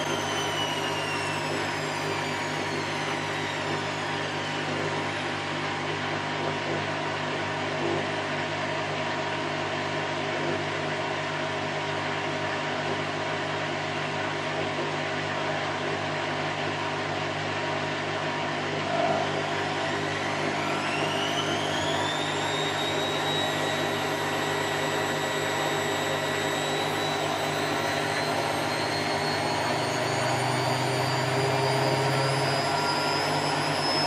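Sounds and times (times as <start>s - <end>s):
motor hum: 0.0s - 8.3s, 18.7s - 34.0s.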